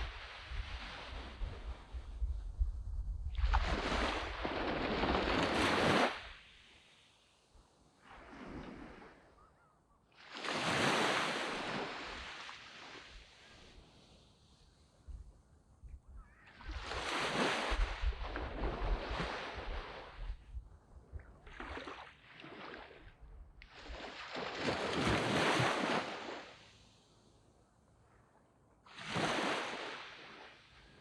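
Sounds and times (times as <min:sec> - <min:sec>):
waves washing up sand beach: 0:00.0 - 0:02.1, 0:03.3 - 0:07.3, 0:10.2 - 0:14.5, 0:16.5 - 0:20.5, 0:21.5 - 0:27.1, 0:28.9 - 0:31.0.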